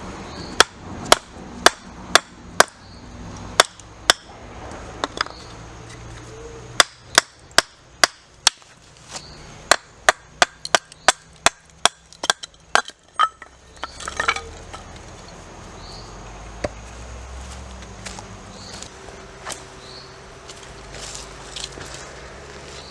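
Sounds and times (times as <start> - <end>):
sharp strikes chopping wood: 6.8 - 8.7, 9.7 - 13.0.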